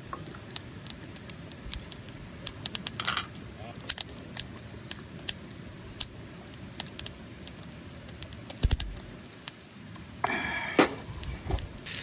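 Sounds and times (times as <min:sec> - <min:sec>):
dull thud: 0:10.8 - 0:11.7.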